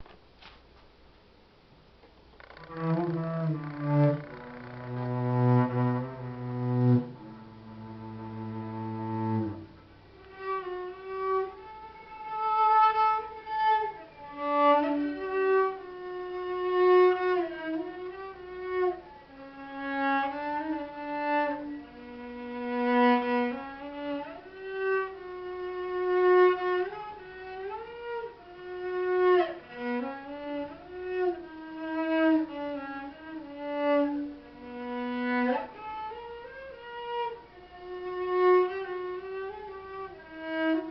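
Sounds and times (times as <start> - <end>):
solo cello: 2.3 - 40.9.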